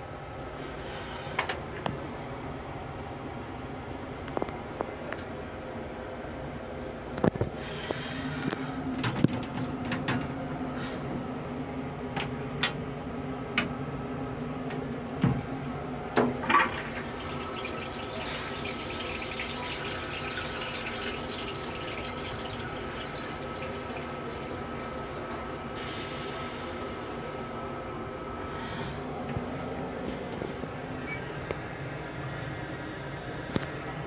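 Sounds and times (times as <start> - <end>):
railcar low hum: 0.0 - 19.4, 21.5 - 34.0
water running: 16.2 - 27.5.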